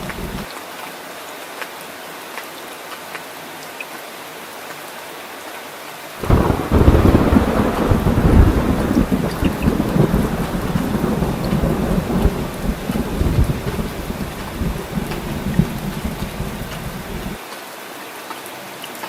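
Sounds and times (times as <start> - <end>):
scattered drips: 0.0 - 0.5, 8.0 - 17.4
thunder crack and rumble: 0.0 - 0.5, 6.2 - 17.4
steady rain: 0.0 - 19.0.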